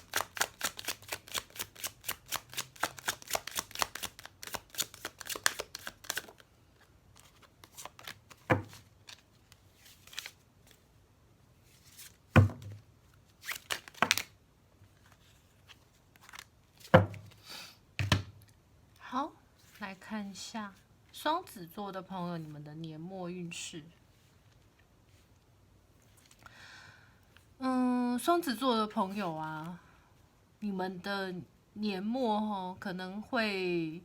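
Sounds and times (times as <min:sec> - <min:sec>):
cards being shuffled: 0:00.0 - 0:10.8, 0:11.7 - 0:17.4
deck knocking on table: 0:12.4 - 0:12.8, 0:17.0 - 0:17.2, 0:18.0 - 0:18.3.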